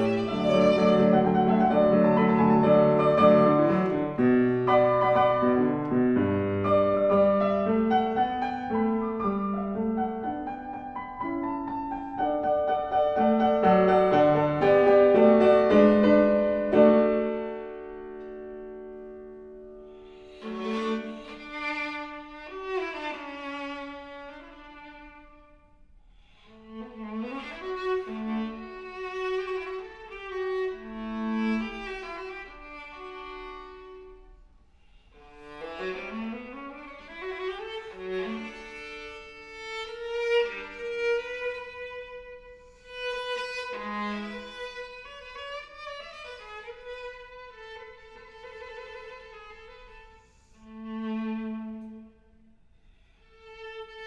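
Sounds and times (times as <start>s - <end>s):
viola playing bowed notes: 0.0s - 12.4s, 20.0s - 25.6s, 26.4s - 34.3s, 35.2s - 52.3s.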